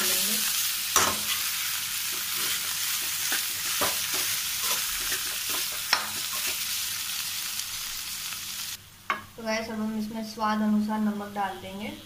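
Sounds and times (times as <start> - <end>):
potatoes sizzling in oil: 0.0 - 8.8.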